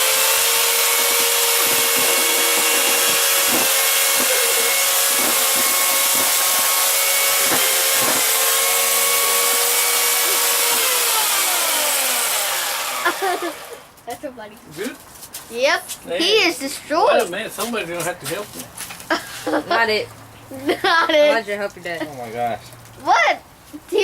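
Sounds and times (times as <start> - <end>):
chainsaw winding down: 0.0 - 13.9
chainsaw cutting plastic: 0.0 - 14.0.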